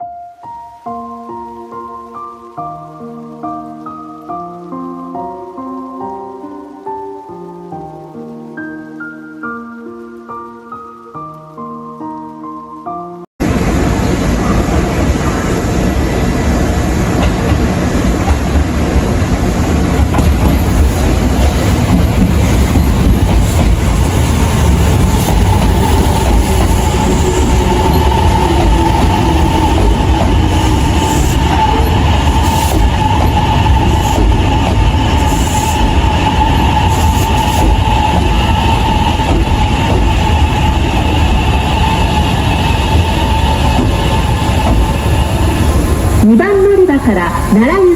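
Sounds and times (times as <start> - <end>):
steady train whine: 13.4 - 47.9
train wheels rumbling on rails: 13.4 - 47.9.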